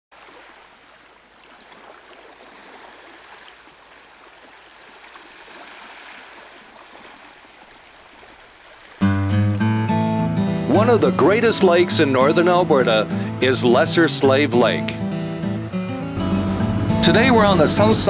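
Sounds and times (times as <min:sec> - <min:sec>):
small waves lapping on shore: 0:00.1 - 0:09.3.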